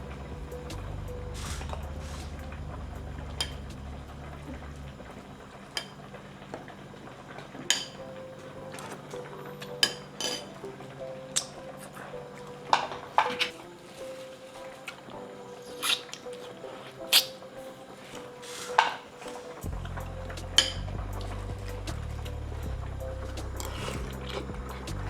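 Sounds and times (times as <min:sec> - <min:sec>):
low rumble: 0:00.0 - 0:05.6, 0:19.7 - 0:25.0
metal utensils clinking: 0:05.6 - 0:25.0.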